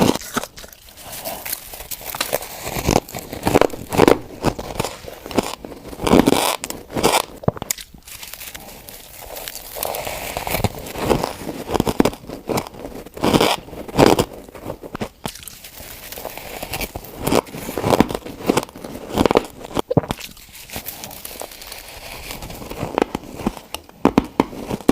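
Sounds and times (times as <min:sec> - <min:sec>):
ice being chewed: 0:00.0 - 0:14.3, 0:15.0 - 0:23.8.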